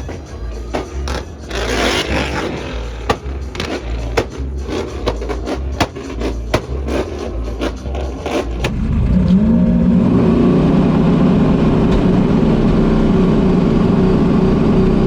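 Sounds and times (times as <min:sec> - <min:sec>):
scraping: 0:00.0 - 0:08.7.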